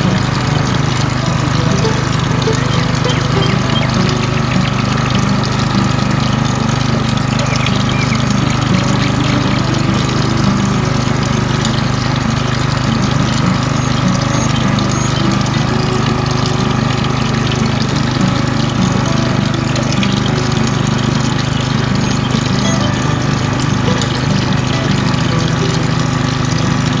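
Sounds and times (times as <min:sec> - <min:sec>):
water pump humming: 0:00.0 - 0:27.0
water splashing and trickling: 0:00.0 - 0:27.0.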